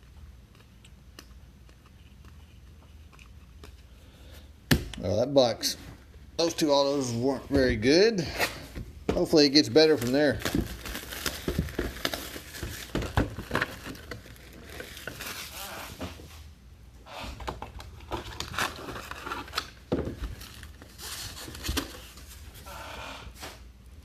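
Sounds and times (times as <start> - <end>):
packaging crinkling and rustling: 9.2 - 16.1, 17.5 - 22.7.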